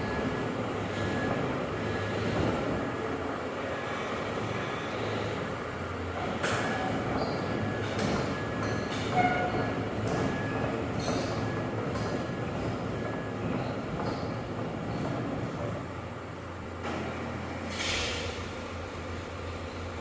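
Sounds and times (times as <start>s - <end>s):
brief metallic squeaks: 6.6s - 8.0s, 17.7s - 18.4s.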